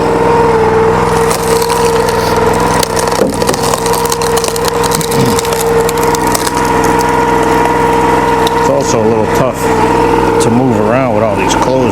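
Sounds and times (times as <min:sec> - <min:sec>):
log splitter engine whining: 0:00.0 - 0:11.9
wood cracking and splintering: 0:01.0 - 0:08.9.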